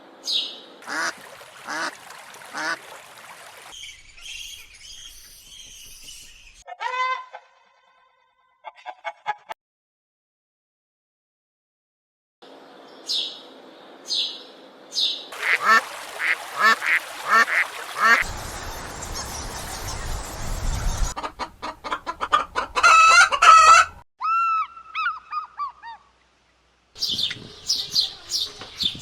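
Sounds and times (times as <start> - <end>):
waterfowl honking: 0.8 - 3.7, 15.4 - 18.3.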